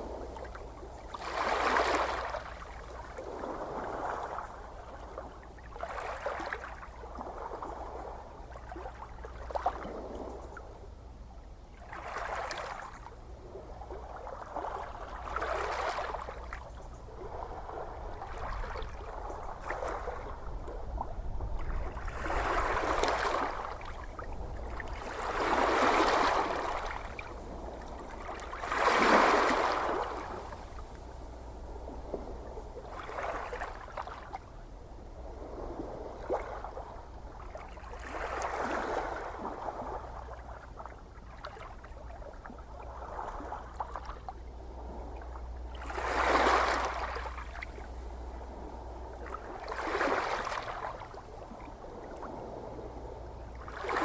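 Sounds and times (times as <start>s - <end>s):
ocean waves breaking: 1.1s - 4.6s, 17.2s - 40.7s, 42.8s - 54.0s
steady low rumble: 29.9s - 37.8s, 47.2s - 49.8s.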